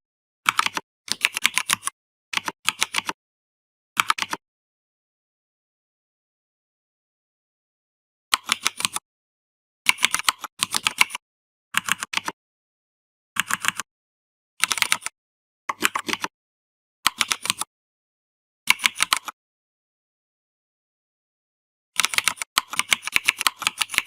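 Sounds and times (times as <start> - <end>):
computer keyboard typing: 0.5 - 3.2, 4.0 - 4.4, 8.4 - 9.0, 9.9 - 11.2, 11.8 - 12.4, 13.4 - 13.9, 14.6 - 15.1, 15.7 - 16.3, 17.1 - 17.7, 18.7 - 19.4, 22.0 - 24.0.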